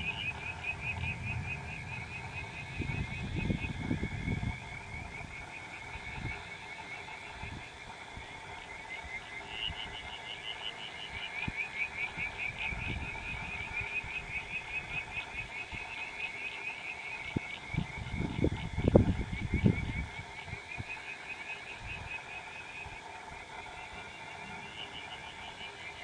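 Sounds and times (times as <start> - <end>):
low rumbles: 0.0 - 5.8
frogs calling in chorus: 0.0 - 26.0.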